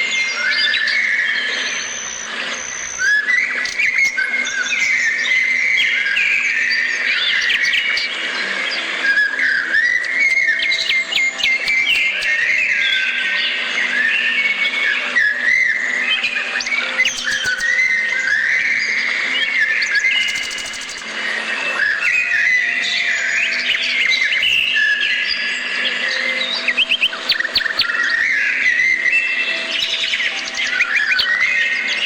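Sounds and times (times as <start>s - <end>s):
birds singing and chirping: 0.0s - 32.0s.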